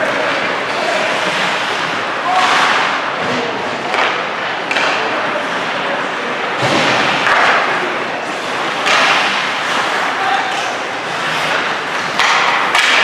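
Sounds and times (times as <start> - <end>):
skating and arena noise: 0.0 - 13.0
puck thudding against boards: 2.3 - 5.1, 6.6 - 13.0.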